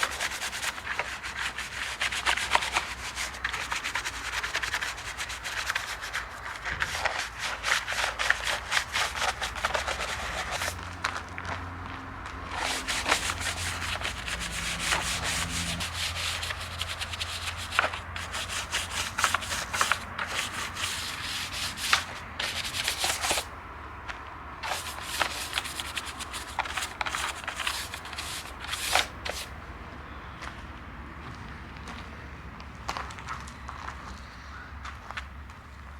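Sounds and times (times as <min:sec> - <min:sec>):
scrubbing and scraping: 0:00.0 - 0:10.8, 0:12.4 - 0:23.5, 0:24.6 - 0:29.6.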